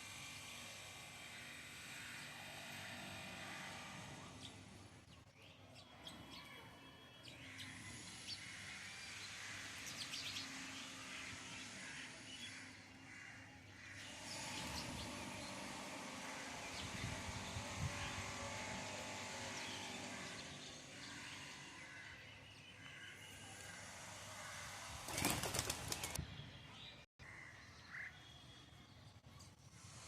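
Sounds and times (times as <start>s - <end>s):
bird wings flapping: 25.0s - 26.2s.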